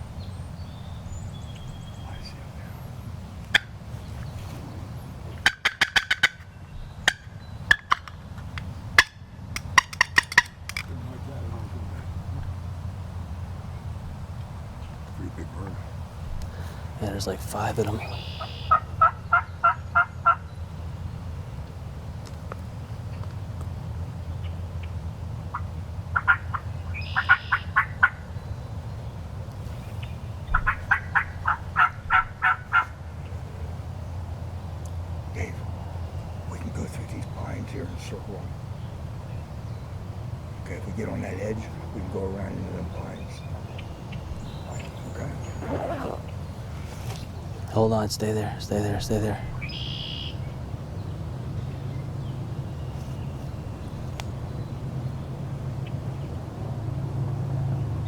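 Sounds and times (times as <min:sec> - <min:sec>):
wild turkey calling: 0:00.0 - 0:21.9, 0:22.8 - 0:56.3
turkey yelping: 0:05.3 - 0:08.1, 0:08.9 - 0:10.8, 0:17.8 - 0:20.5, 0:25.5 - 0:28.3, 0:30.5 - 0:33.7, 0:49.1 - 0:50.5.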